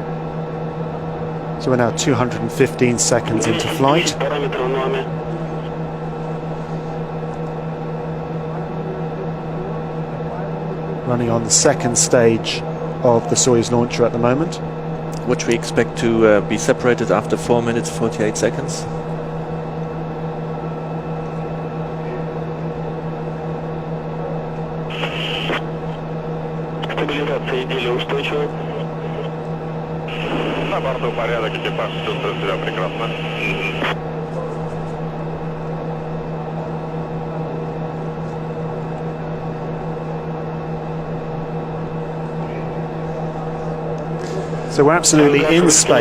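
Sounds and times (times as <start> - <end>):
electrical hum and hiss: 0.0 - 46.0
burst of radio noise: 3.2 - 5.2, 24.9 - 26.0, 26.8 - 29.3, 30.1 - 34.0, 45.2 - 46.0.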